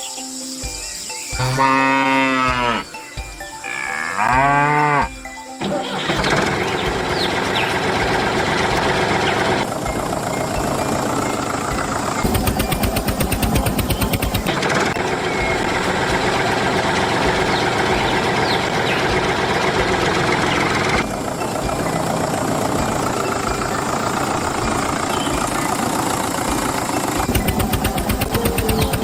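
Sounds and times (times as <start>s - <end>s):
engine running: 5.6s - 29.0s.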